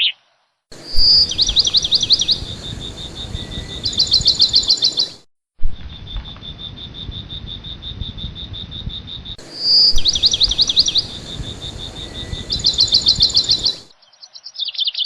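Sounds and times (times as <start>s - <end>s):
parrots chirping: 9.4s - 13.9s.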